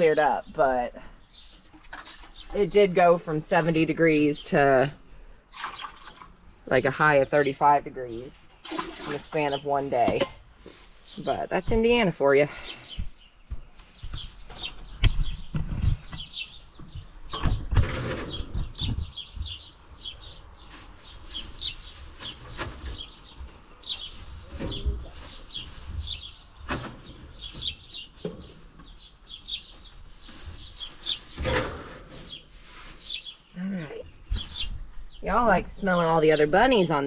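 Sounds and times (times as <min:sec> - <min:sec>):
small birds chirping: 0:00.0 - 0:37.0
knocks and bumps: 0:14.0 - 0:19.6.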